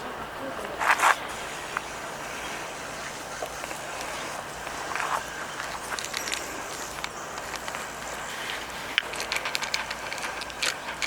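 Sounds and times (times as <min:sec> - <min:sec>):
outdoor background noise: 0:00.0 - 0:11.0
light clicks and rustles: 0:03.3 - 0:11.0.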